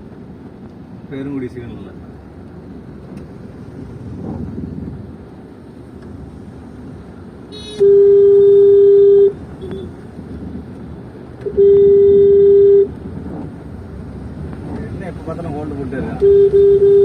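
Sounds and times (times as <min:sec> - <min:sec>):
traffic noise: 0:00.0 - 0:17.0
vehicle horn honking: 0:07.5 - 0:10.0, 0:11.5 - 0:12.9, 0:16.2 - 0:17.0.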